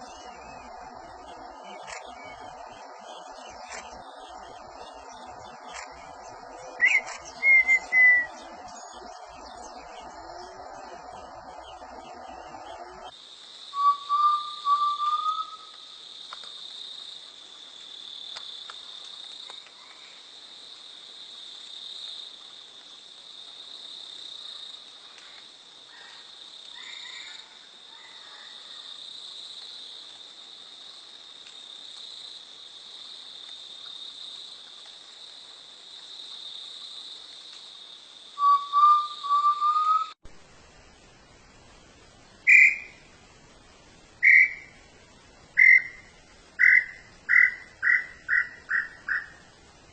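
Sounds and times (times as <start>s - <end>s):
high insect chorus: 0.0s - 40.2s, 42.2s - 49.9s
bird whistling phrase: 6.8s - 8.3s, 13.8s - 15.6s, 38.4s - 40.2s.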